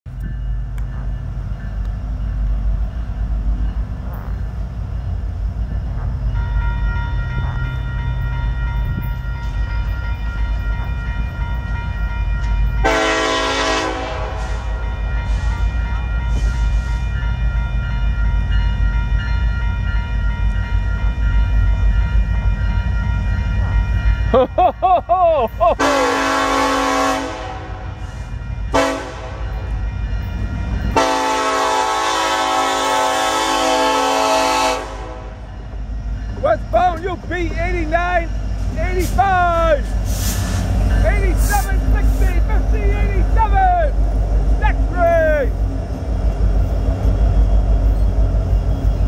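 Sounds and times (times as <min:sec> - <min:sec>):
diesel locomotives rumbling: 0:00.0 - 0:49.0
locomotive horn blast: 0:06.0 - 0:18.3, 0:25.8 - 0:35.6.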